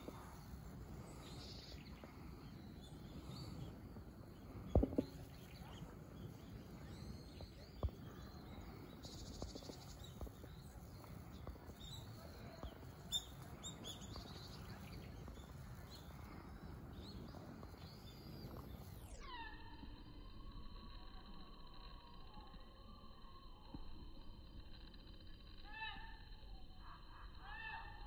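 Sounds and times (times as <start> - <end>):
high thin bird chirps: 0.0 - 20.3
faint outdoor hum: 0.0 - 28.0.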